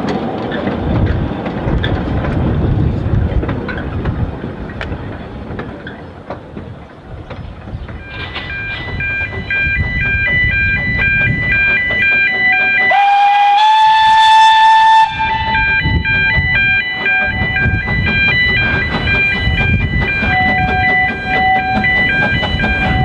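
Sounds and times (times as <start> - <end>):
low rumble of train running: 0.0 - 23.0
steam locomotive whistle: 8.0 - 23.0.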